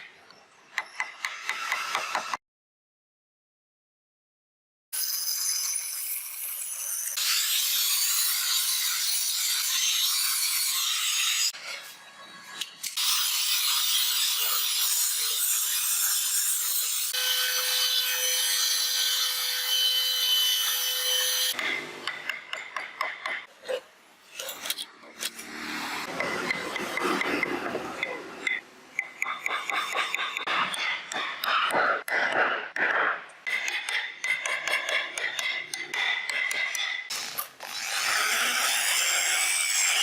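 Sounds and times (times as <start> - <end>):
abrasive tool scraping wood: 21.5 - 38.6.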